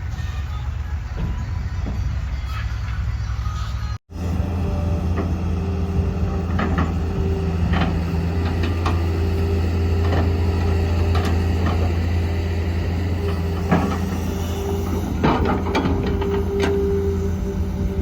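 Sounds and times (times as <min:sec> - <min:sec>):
heavy diesel engine running: 0:04.1 - 0:18.0
short knocks and clanks: 0:06.3 - 0:12.2, 0:13.2 - 0:17.0.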